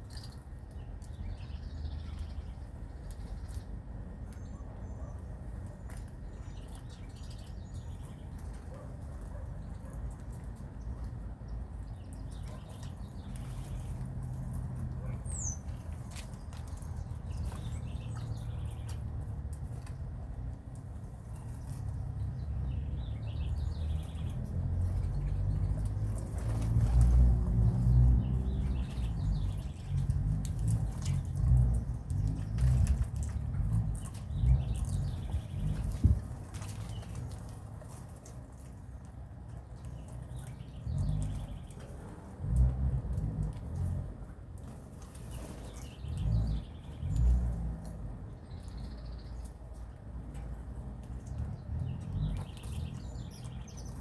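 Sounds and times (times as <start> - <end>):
birds clicking and scratching: 5.5 - 54.0
low rumble: 24.0 - 37.5.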